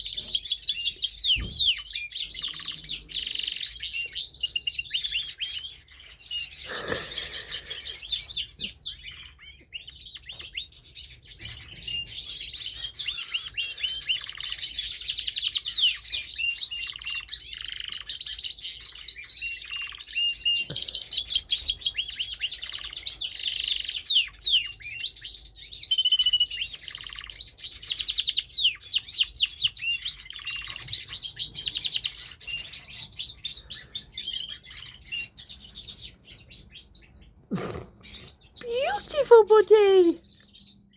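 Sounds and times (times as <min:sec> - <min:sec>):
canary warbling song: 0:00.0 - 0:40.9.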